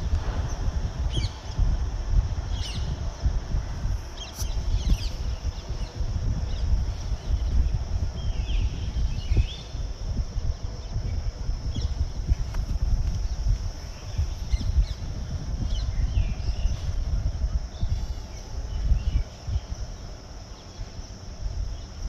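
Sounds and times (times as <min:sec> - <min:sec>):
low rumble: 0:00.0 - 0:22.0
birds chirping: 0:13.2 - 0:22.0.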